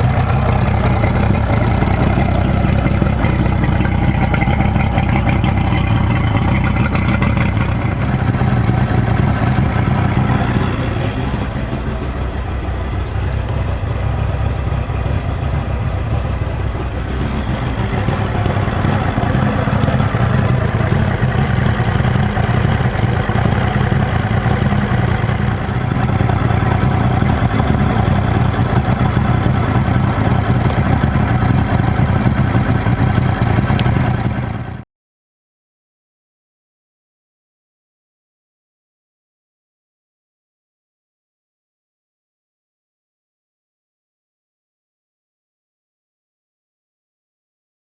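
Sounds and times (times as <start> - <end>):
outboard engine running: 0.0 - 34.8.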